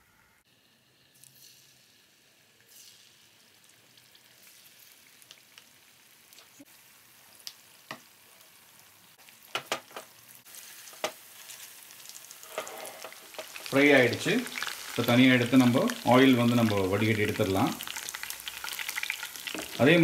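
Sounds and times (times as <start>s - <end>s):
chicken sizzling in hot oil: 0.5s - 20.0s.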